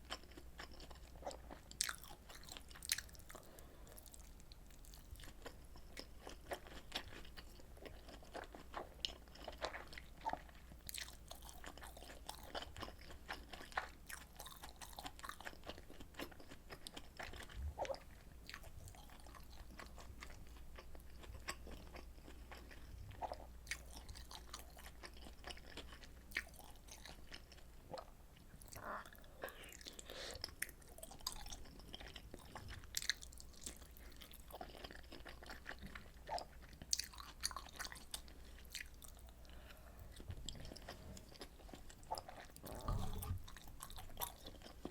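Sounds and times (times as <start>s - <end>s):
person chewing and biting food: 0.0s - 44.9s.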